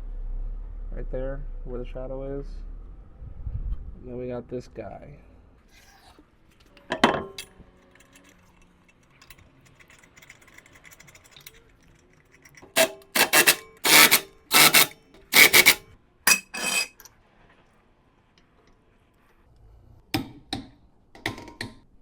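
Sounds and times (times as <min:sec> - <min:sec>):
ratchet wrench clicking: 0:12.8 - 0:16.9.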